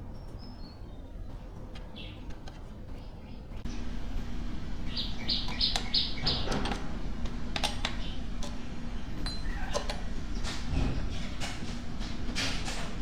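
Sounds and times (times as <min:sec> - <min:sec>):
steady low hum: 0:00.0 - 0:13.0
high chirps: 0:04.8 - 0:06.5.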